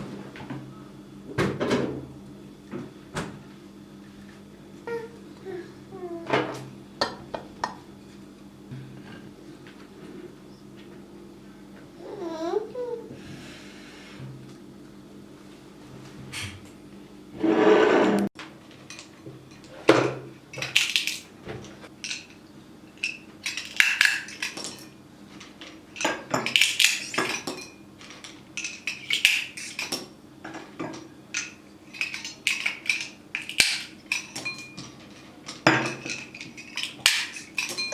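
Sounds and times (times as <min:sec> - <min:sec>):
dishes and cutlery clinking: 0:22.0 - 0:37.9.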